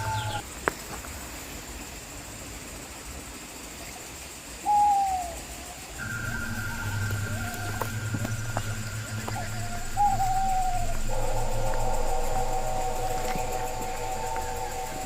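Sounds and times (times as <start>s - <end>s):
bird hooting call: 0.0s - 0.4s, 4.6s - 15.0s.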